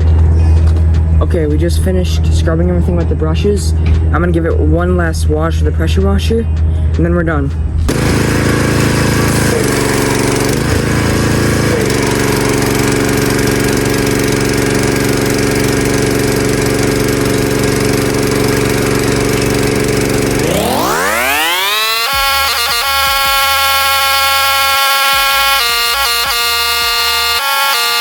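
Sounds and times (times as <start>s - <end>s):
rising whine: 0.0s - 28.0s
pressure washer humming: 7.9s - 28.0s.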